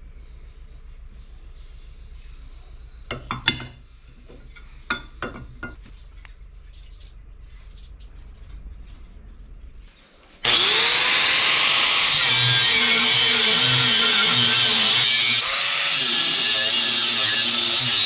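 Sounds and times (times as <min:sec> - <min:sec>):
low hum: 0:00.0 - 0:10.8
power tool motor spinning up: 0:10.4 - 0:18.0.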